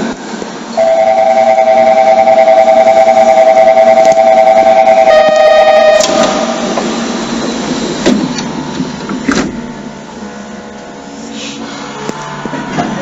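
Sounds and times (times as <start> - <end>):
train rumbling: 0.0 - 13.0
steady pitched tone: 0.7 - 8.0.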